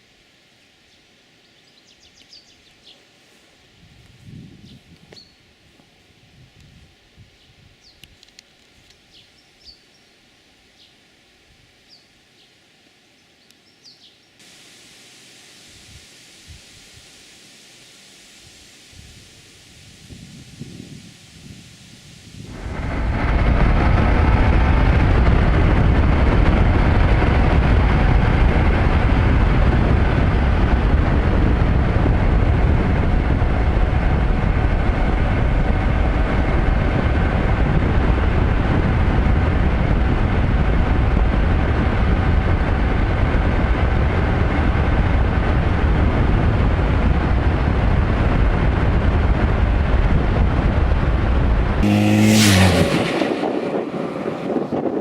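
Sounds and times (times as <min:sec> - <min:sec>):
wind and road noise: 0:01.9 - 0:11.8, 0:15.7 - 0:55.0
motorcycle engine hum: 0:14.9 - 0:55.0.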